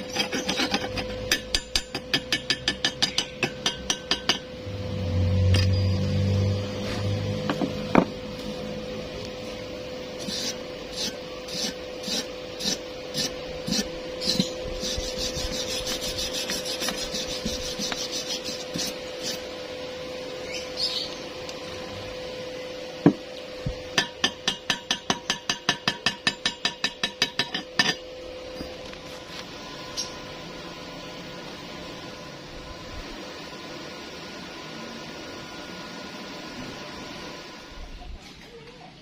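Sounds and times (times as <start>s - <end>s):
hand tool filing metal: 0.0s - 4.4s, 10.2s - 19.4s
steady hum: 0.0s - 38.6s.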